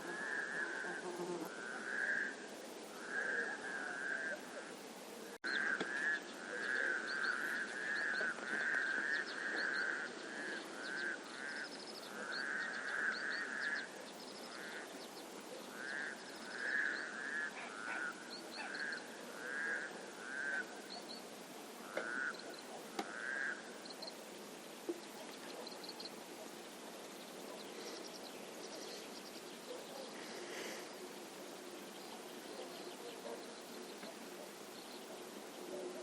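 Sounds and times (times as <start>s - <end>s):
frogs croaking in chorus: 0.0s - 4.8s, 5.4s - 24.2s
small birds chirping: 23.8s - 36.0s.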